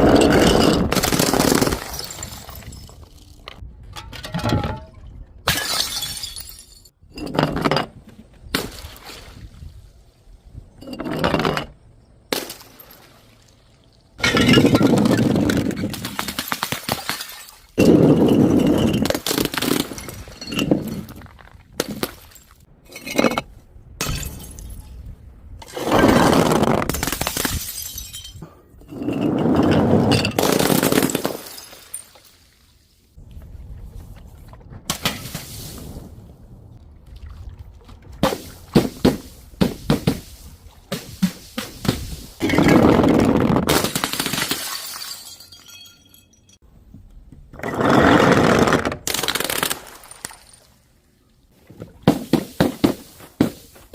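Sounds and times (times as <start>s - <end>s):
glass bottles shattering: 0.0s - 3.4s, 4.0s - 7.5s, 14.2s - 24.8s, 26.9s - 32.4s, 43.7s - 46.6s
sharp glass clinks: 45.0s - 46.6s.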